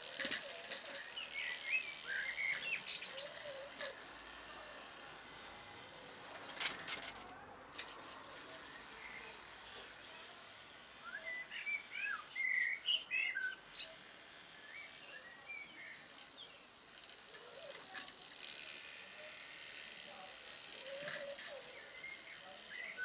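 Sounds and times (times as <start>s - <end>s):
birds chirping and twittering: 0.5s - 4.1s, 11.0s - 18.5s, 20.7s - 23.0s.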